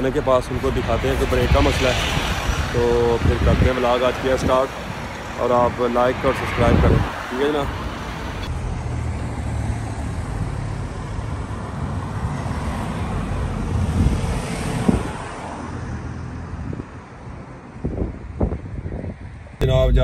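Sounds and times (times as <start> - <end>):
car engine humming: 19.6 - 20.0.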